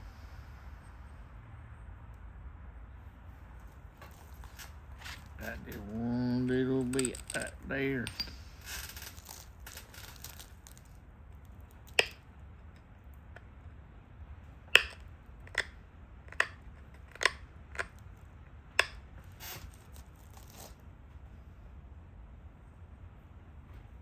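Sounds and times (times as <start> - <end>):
stone flakes snapping off: 11.8 - 12.2, 14.7 - 15.7
scratchy rubbing on stone: 19.3 - 20.8.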